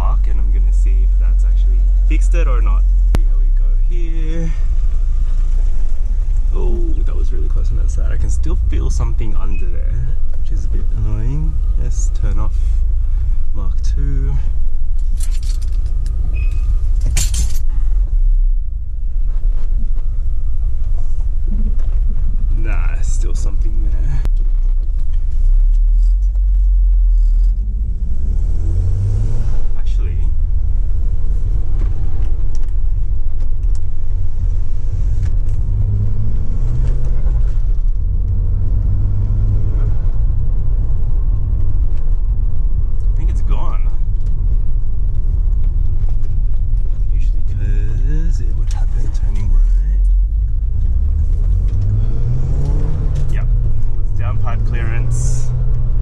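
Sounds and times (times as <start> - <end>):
car engine and road rumble: 0.0 - 56.0
brief rattle: 14.9 - 18.0.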